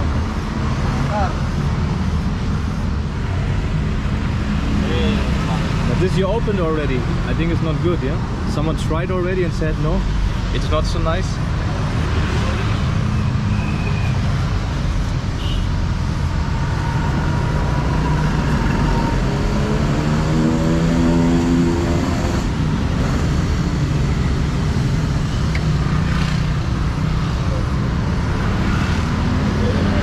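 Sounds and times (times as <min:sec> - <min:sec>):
vehicle engines rumbling: 0:00.0 - 0:30.0.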